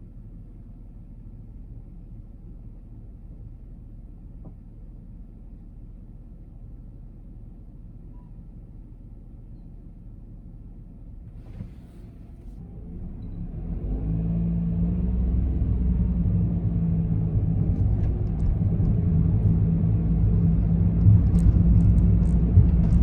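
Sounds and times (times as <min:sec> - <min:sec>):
car engine idling and pulling away: 0:10.3 - 0:23.0.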